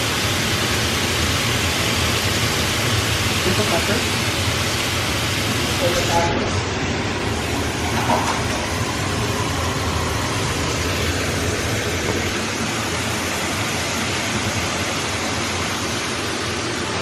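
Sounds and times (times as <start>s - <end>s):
meat sizzling in a pan: 0.0s - 6.5s, 7.1s - 11.3s.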